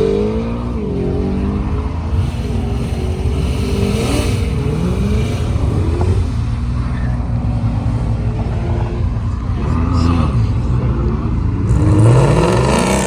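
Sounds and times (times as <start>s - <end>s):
car engines accelerating hard: 0.0s - 13.0s
steady low rumble: 1.8s - 11.6s.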